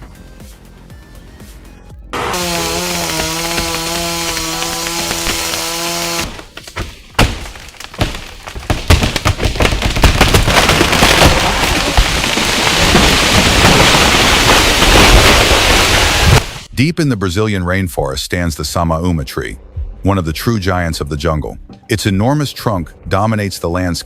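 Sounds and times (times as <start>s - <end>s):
chainsaw running: 2.2s - 6.6s
wood splintering and breaking: 2.3s - 16.7s.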